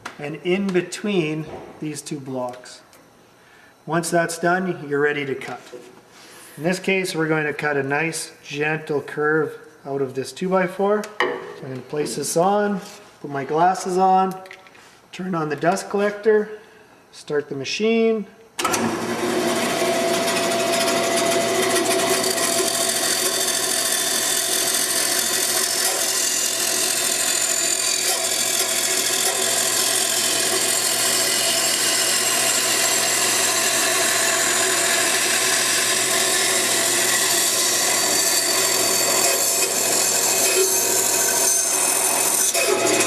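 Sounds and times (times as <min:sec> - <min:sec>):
bandsaw cutting wood: 0:18.6 - 0:43.0
dust collector running: 0:18.6 - 0:43.0.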